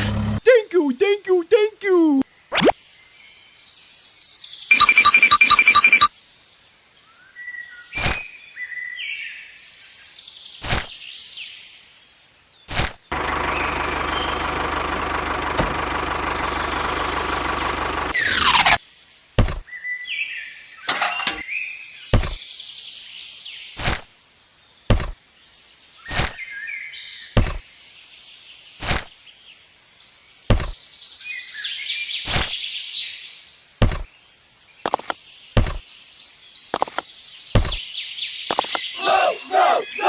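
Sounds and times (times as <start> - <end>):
birds chirping faintly: 18.8 - 40.0.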